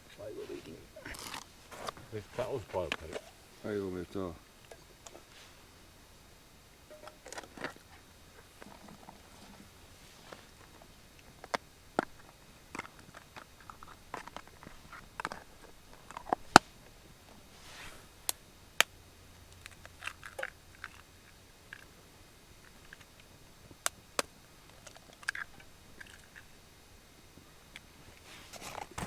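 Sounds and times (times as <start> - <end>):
biting and chewing food: 0.5 - 3.5, 6.9 - 17.0, 19.5 - 22.0, 22.6 - 26.6.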